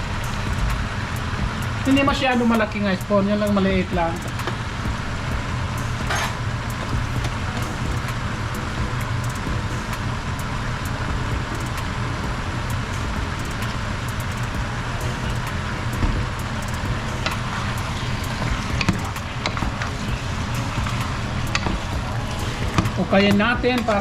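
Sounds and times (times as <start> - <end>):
steady low hum: 0.0 - 24.0
chicken sizzling in hot oil: 16.4 - 24.0.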